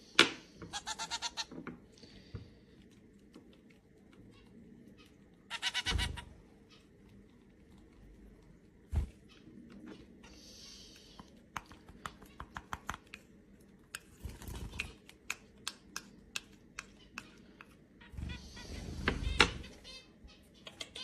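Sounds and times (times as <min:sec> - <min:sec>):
sharp irregular taps: 0:11.5 - 0:13.2.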